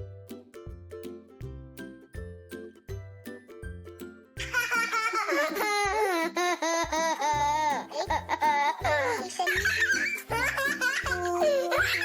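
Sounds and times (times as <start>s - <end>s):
baby laughing: 4.4s - 12.0s.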